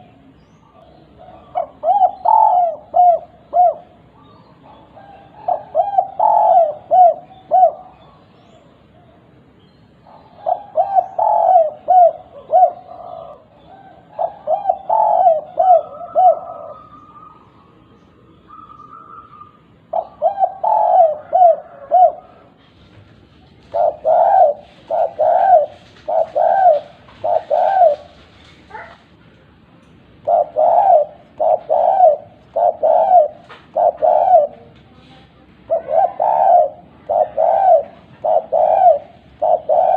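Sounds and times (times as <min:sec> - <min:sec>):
dove cooing: 0:00.0 - 0:09.3, 0:10.0 - 0:29.2, 0:30.2 - 0:39.9.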